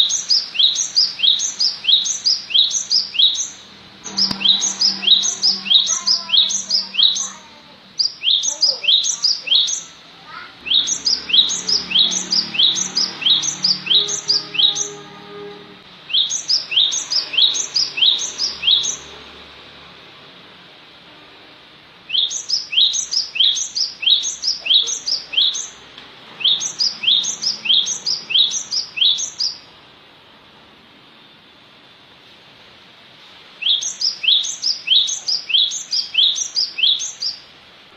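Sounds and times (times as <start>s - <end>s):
bird whistling falling notes: 4.1s - 7.2s.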